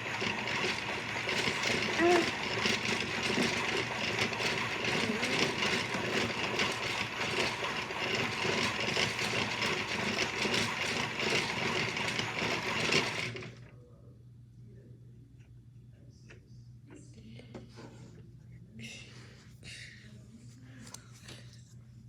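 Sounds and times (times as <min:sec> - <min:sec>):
toy washing machine motor whirring: 0:00.0 - 0:13.7.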